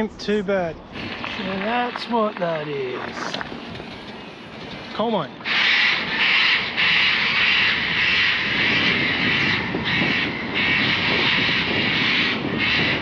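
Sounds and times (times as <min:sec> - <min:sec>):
cockatoos screeching: 0:05.4 - 0:13.0.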